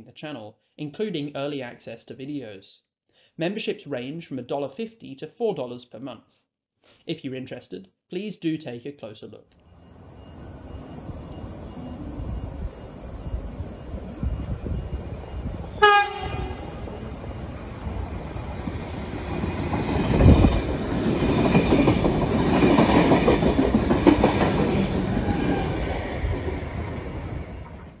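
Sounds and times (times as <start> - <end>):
train rumbling past: 9.6 - 28.0
train horn blast: 15.8 - 17.2.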